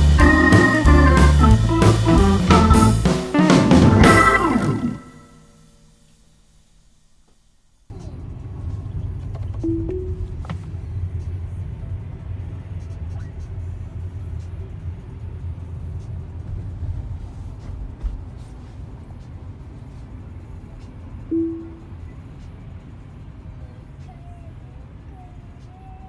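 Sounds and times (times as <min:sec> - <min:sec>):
car road and tyre noise: 0:07.9 - 0:21.3.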